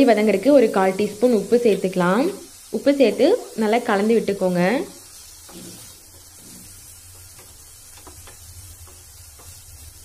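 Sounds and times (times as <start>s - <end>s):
vegetables sizzling in oil: 0.0s - 10.0s
spatula scraping and tapping pan: 4.9s - 10.0s.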